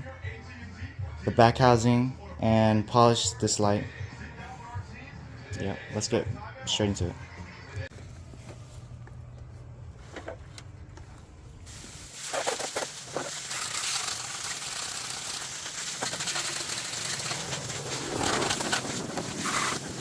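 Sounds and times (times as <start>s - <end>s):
water spraying from garden hose: 11.7s - 20.0s.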